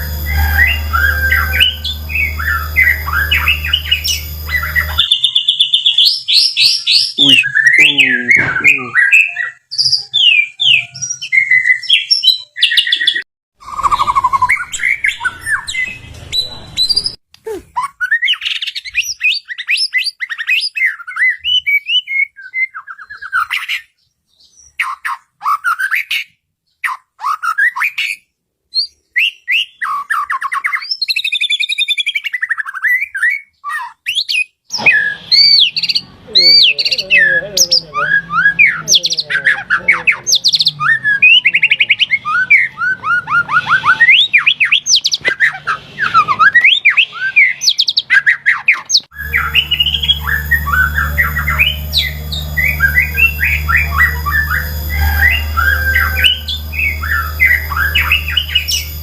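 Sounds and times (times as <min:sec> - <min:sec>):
low hum: 0:00.0 - 0:05.2, 0:49.1 - 0:59.0
bird singing whistled phrases: 0:00.0 - 0:23.8, 0:28.8 - 0:59.0.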